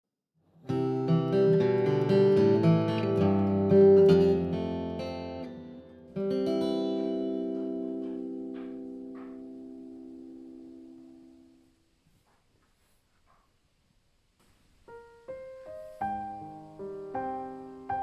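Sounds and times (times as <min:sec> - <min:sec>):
acoustic guitar music: 0:00.6 - 0:11.8, 0:14.9 - 0:18.0.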